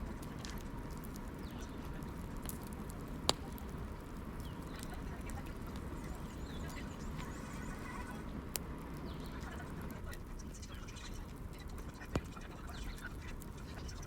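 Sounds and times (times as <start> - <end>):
fire popping: 0.0 - 14.0
wood fire crackling: 0.0 - 14.0.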